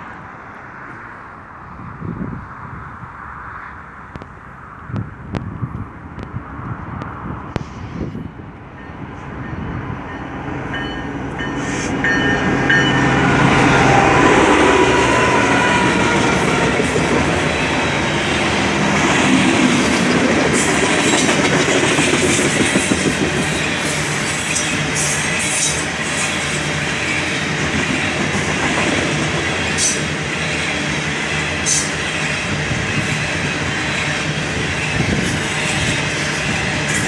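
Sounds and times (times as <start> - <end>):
freight cars rumbling on rails: 0.0 - 37.0
diesel locomotive engines running: 4.0 - 37.0.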